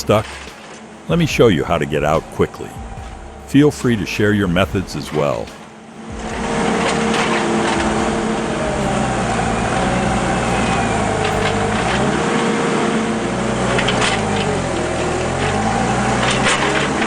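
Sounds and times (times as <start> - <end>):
heavy machine engine under load: 0.0 - 17.0.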